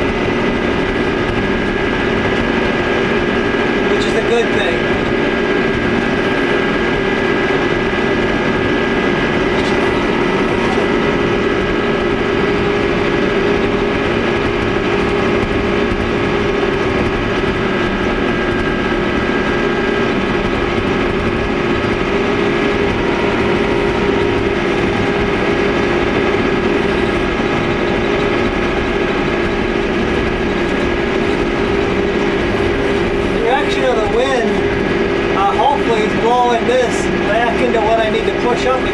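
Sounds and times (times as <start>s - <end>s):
engine droning from inside cab: 0.0s - 38.9s.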